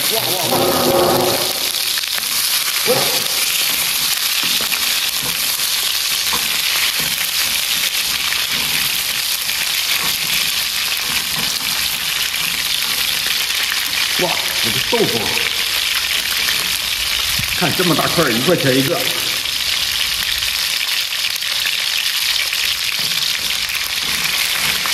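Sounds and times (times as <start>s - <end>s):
food sizzling in hot oil: 0.0s - 24.9s.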